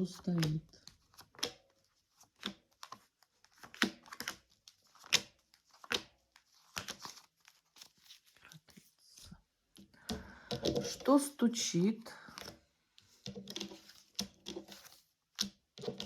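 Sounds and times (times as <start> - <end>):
cards slapping on a table: 2.2 - 7.1.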